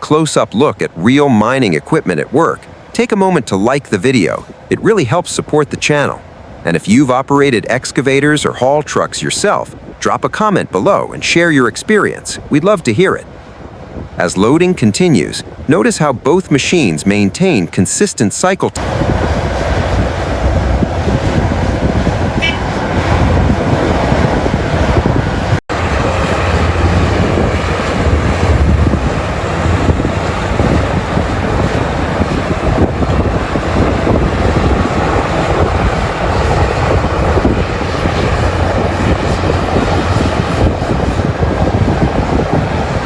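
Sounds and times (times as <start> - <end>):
diesel excavator droning: 18.8 - 23.7, 25.8 - 43.0.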